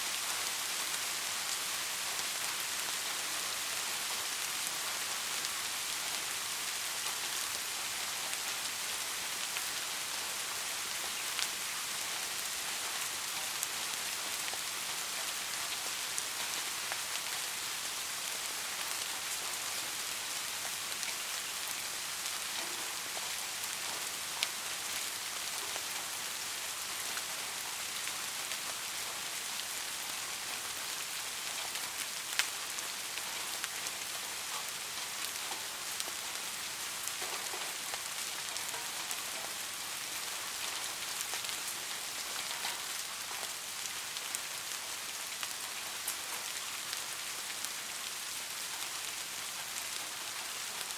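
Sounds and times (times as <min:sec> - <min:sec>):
steady rain hissing: 0:00.0 - 0:50.9.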